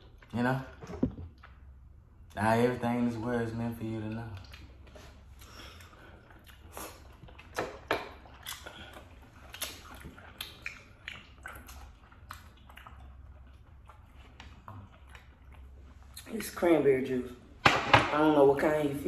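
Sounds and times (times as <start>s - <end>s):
chewing and mouth smacks: 4.0s - 16.4s.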